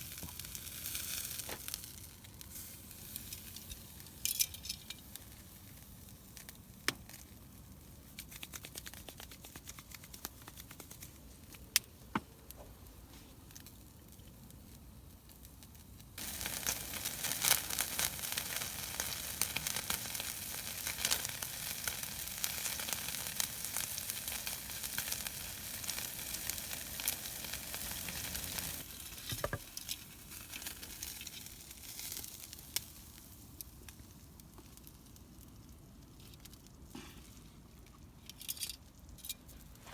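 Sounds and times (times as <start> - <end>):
loud sizzling and crackling: 16.2 - 33.7.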